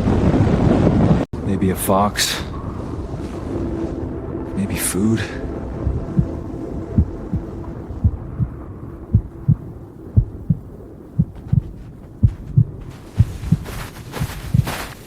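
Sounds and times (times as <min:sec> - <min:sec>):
steady low drone: 0:01.4 - 0:14.9
heartbeat thumps: 0:05.5 - 0:15.0.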